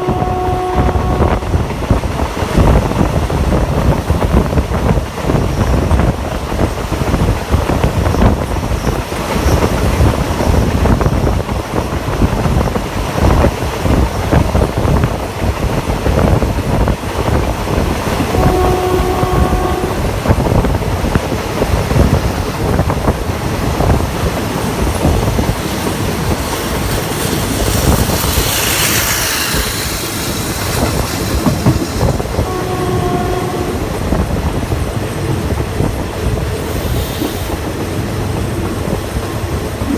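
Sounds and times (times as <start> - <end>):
locomotive horn: 0.0 - 1.6, 18.3 - 20.2, 31.4 - 34.2
train rumble and wheel clatter: 0.0 - 39.9.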